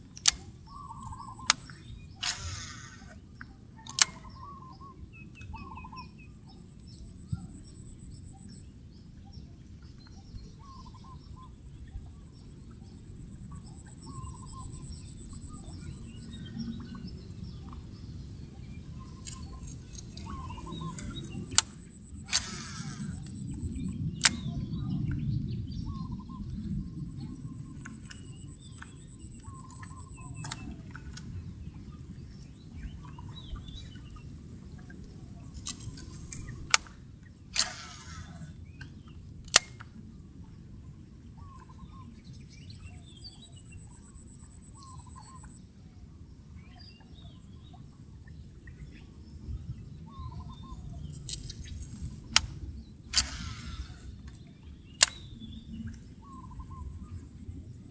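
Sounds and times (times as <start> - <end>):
sharp clicks: 0.1 - 3.2, 3.8 - 4.3, 19.2 - 24.5, 29.7 - 31.3, 35.6 - 37.0, 37.6 - 38.2, 39.4 - 40.0, 51.2 - 54.4, 55.0 - 56.0
bird-like chirps: 0.1 - 34.4, 40.8 - 45.6, 50.0 - 57.7.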